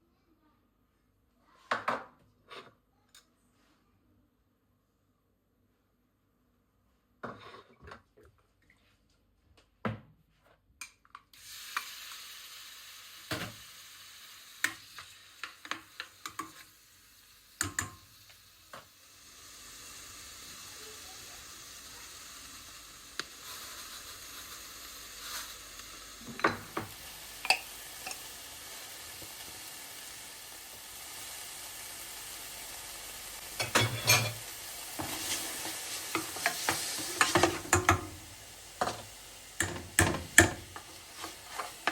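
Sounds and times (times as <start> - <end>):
food sizzling in hot oil: 11.4 - 41.9
utensil knocking against pan: 39.6 - 40.8.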